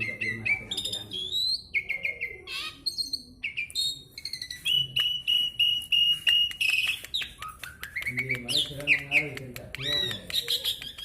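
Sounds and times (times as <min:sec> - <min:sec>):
birds singing whistles and chirps: 0:00.0 - 0:11.0
repeated whistled notes: 0:03.1 - 0:11.0.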